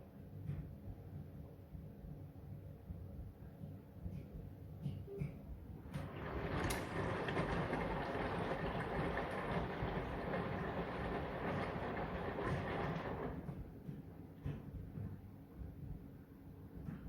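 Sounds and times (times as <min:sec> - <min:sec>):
washing machine drum rumbling: 0:05.8 - 0:15.2.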